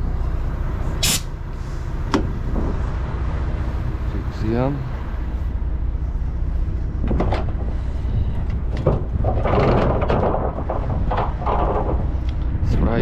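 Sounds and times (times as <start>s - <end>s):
low rumble: 0.0s - 13.0s
trailer door scraping open: 7.1s - 12.3s.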